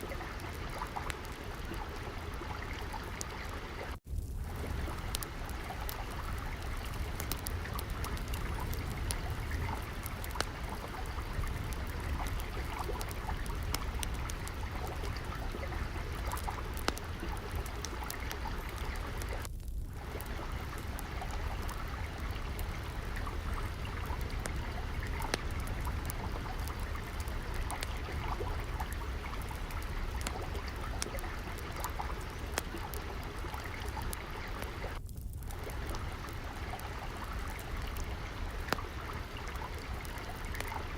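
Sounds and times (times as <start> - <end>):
trickling water: 0.0 - 40.9
wood fire crackling: 0.0 - 40.9.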